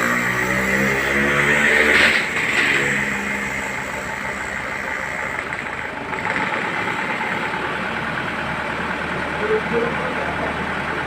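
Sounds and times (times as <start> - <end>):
heavy vehicle engine idling: 2.3 - 11.0.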